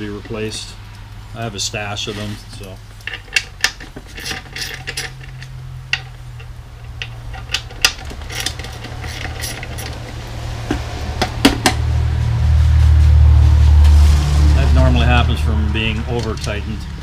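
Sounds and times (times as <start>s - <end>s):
steady low hum: 0.0s - 17.0s
small metal parts clinking: 2.2s - 11.4s.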